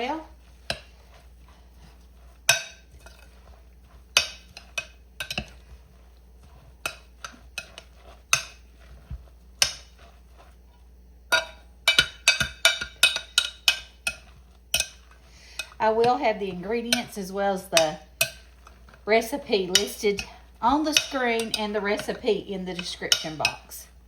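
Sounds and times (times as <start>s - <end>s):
utensil clinking against bowl: 2.2s - 5.8s, 6.5s - 10.2s, 11.3s - 23.9s.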